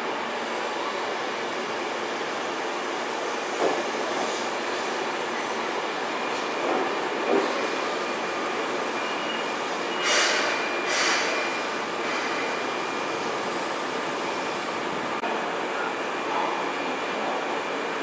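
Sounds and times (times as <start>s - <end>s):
air hiss bursts: 10.0s - 11.4s.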